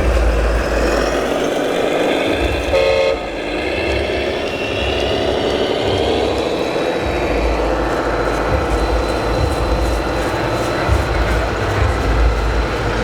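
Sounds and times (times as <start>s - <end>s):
hall noise: 0.0s - 13.0s
model truck horn toot: 2.7s - 3.4s.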